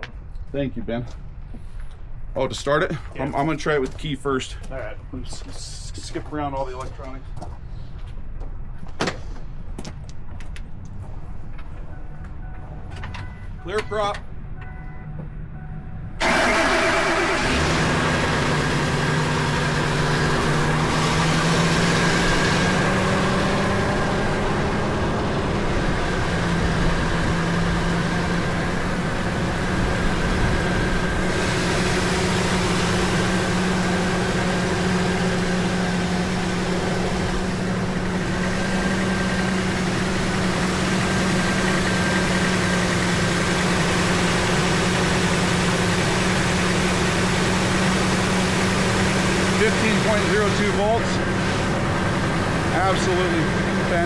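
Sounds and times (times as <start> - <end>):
truck engine starting and idling: 16.1 - 54.0.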